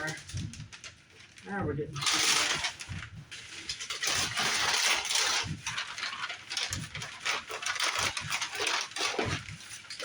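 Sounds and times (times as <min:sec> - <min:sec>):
packaging being torn open: 0:03.6 - 0:10.0.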